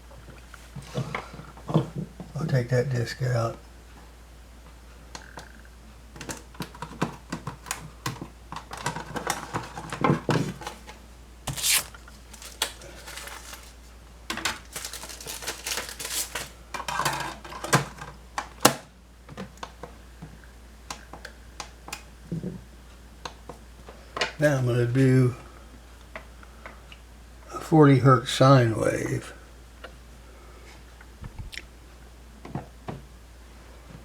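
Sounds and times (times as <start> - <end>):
steady low hum: 0.0 - 6.9, 18.2 - 34.0
cd clicks and clatter: 6.1 - 11.0, 20.9 - 22.1.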